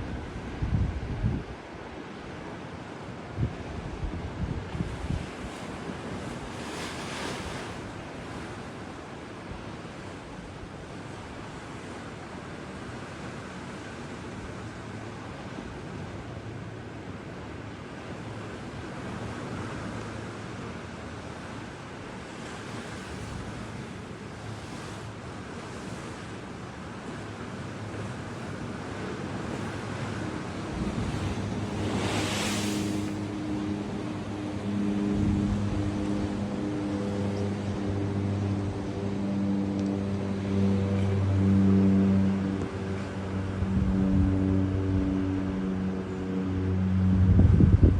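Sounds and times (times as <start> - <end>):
waves washing on shore: 0.0 - 47.2
vehicle engine droning: 29.5 - 47.9.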